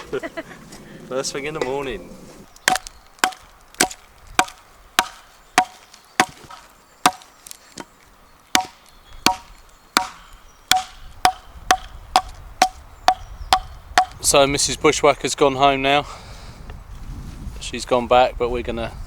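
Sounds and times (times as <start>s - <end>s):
sharp chopping strikes ringing: 2.6s - 7.3s, 8.5s - 14.2s.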